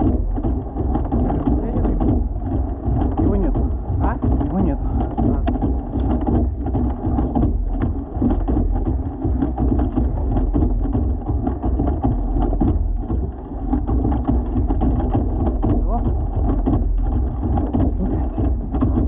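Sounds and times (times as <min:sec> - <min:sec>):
rain taps: 0:00.0 - 0:19.0
wind on microphone: 0:00.0 - 0:19.0.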